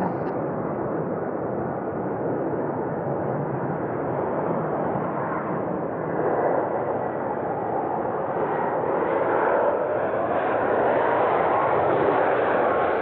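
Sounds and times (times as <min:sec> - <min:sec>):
jetliner engine roar: 0:00.0 - 0:13.0.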